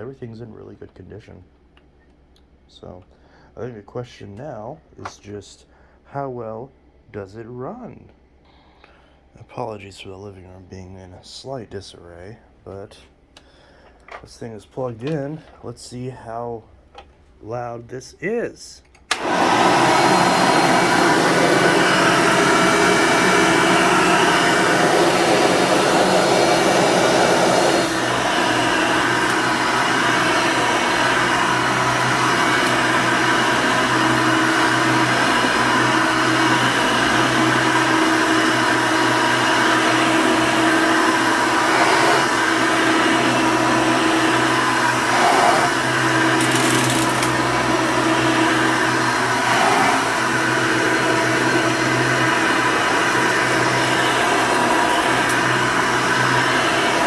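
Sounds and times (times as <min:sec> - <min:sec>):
vacuum cleaner motor running: 0:19.1 - 0:57.0.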